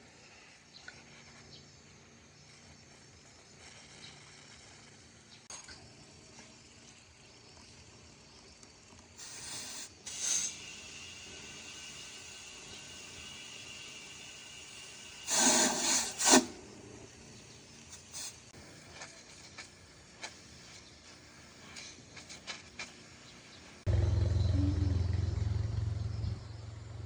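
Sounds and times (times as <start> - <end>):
loud burst of hiss: 9.2 - 18.6
motor humming: 23.9 - 27.0.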